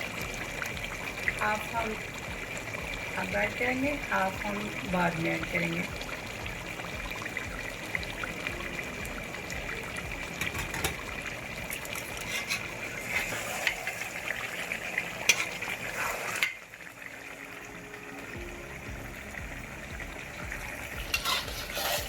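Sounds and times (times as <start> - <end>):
food sizzling in oil: 0.0 - 22.0
spoon scraping a pot: 11.9 - 14.2, 15.2 - 16.6, 21.0 - 22.0.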